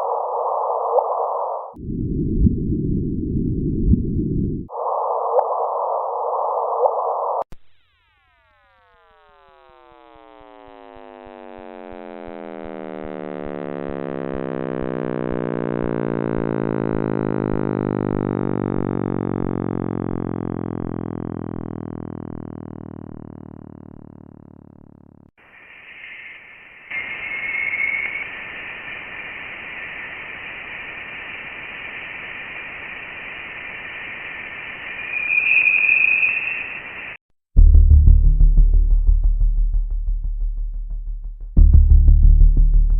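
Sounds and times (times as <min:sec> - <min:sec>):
hiss with low hum: 0:25.4 - 0:37.2.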